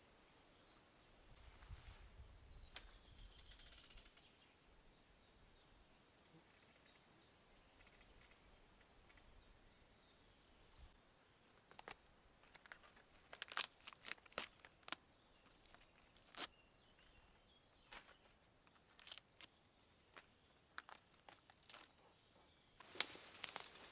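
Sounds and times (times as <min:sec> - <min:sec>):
faint bird chirps: 0:00.0 - 0:11.0
hands handling food crinkling: 0:11.5 - 0:17.1, 0:17.9 - 0:22.1, 0:22.8 - 0:23.9.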